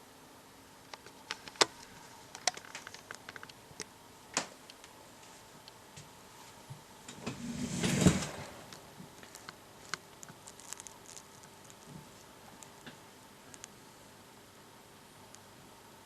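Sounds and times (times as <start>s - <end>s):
scraping rustling slide: 7.2s - 9.5s.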